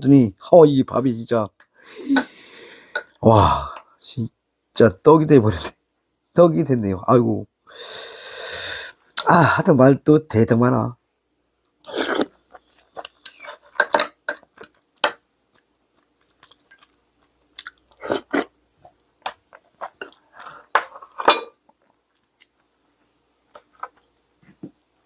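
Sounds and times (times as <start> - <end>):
person chewing and crunching: 11.9 - 13.7, 15.5 - 20.7.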